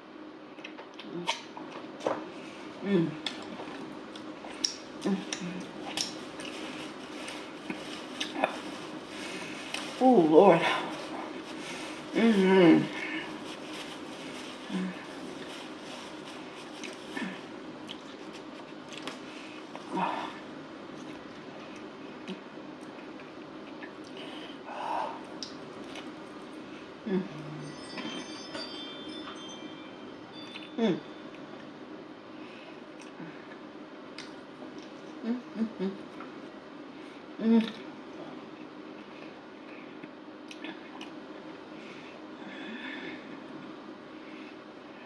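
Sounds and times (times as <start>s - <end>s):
wet mouth clicks: 0.6s - 1.5s
person chewing: 3.2s - 9.9s, 13.0s - 19.9s
chewing: 17.8s - 19.2s.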